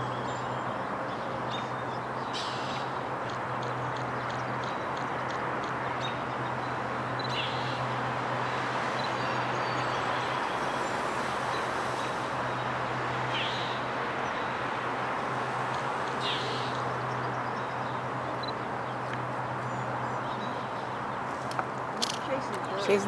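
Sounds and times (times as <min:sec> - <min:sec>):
city traffic: 0:00.0 - 0:23.0.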